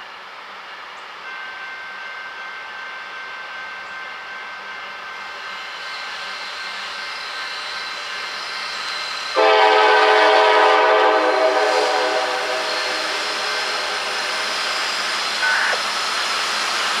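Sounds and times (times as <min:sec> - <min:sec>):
freight train approaching: 0:00.0 - 0:17.0
locomotive air horn blast: 0:09.4 - 0:14.8.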